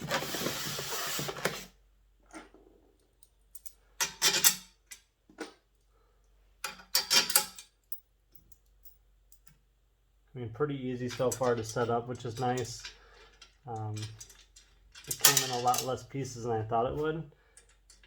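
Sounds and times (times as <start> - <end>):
small metallic clicks and clinks: 3.0 - 5.5, 6.6 - 9.6, 11.1 - 16.0.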